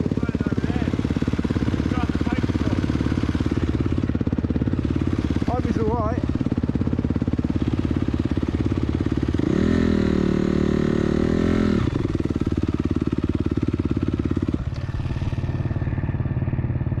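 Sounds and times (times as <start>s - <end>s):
dirt bike engine idling: 0.0s - 17.0s.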